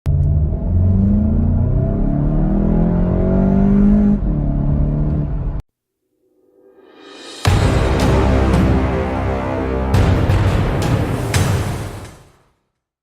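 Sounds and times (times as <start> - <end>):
car engine accelerating hard: 0.1 - 5.6.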